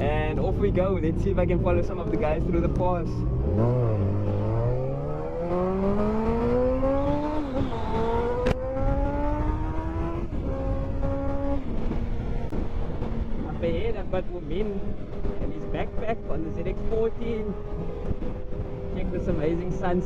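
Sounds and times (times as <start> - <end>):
motorcycle engine accelerating: 0.0 - 20.0
wind rush: 7.6 - 15.8.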